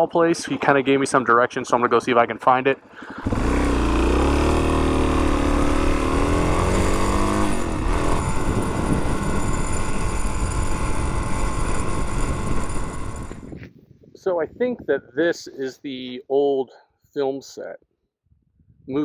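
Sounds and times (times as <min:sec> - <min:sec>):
motorcycle engine accelerating: 0:02.8 - 0:13.7
road and wind noise: 0:03.2 - 0:13.8.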